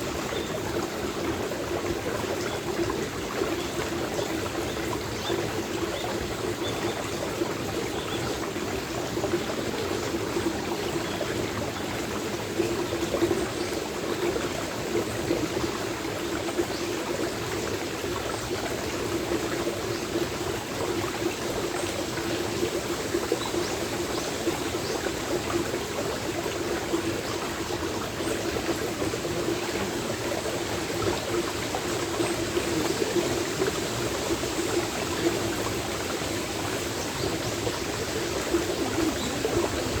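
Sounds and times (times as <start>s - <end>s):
stream water running: 0.0s - 40.0s.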